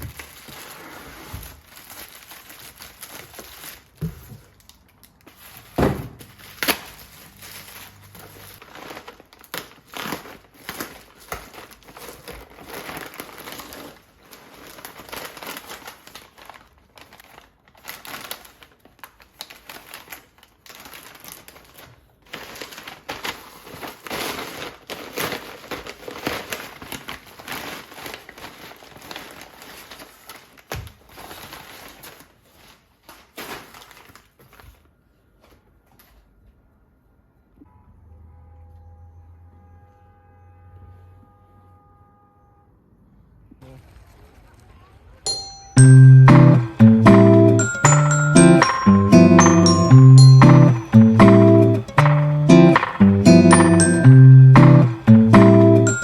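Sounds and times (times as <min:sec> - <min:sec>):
packaging crinkling: 0:00.0 - 0:34.9.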